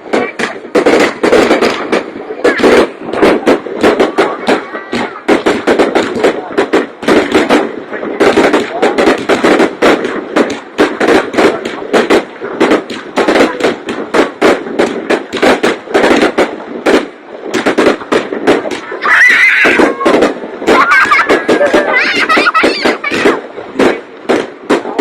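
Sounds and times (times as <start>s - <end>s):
fireworks bursting: 0.0s - 25.0s.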